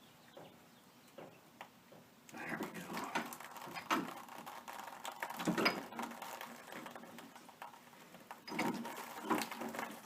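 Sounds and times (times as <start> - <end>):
metal clicking and scraping: 2.8 - 10.0
metal clatter: 8.3 - 10.0.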